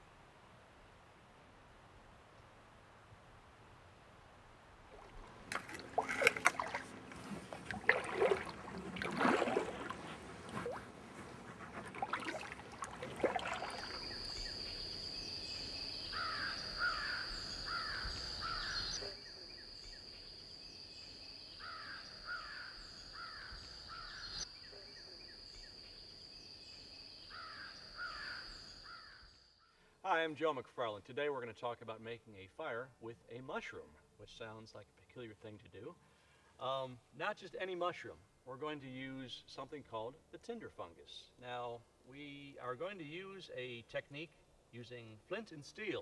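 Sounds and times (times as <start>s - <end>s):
bird harsh calls: 16.0s - 19.4s, 21.6s - 24.5s, 27.3s - 29.3s.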